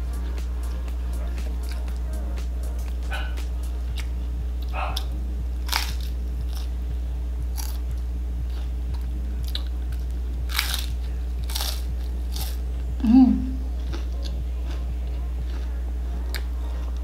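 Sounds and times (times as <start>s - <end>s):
steady low hum: 0.0s - 17.0s
crunching crispy fried chicken: 5.6s - 6.7s, 7.5s - 7.8s, 9.4s - 12.6s.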